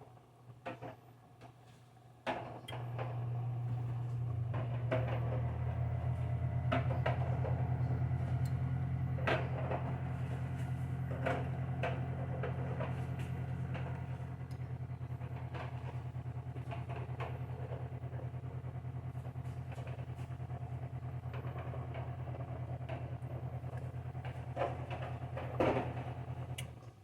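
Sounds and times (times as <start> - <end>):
motor hum: 2.7 - 27.0.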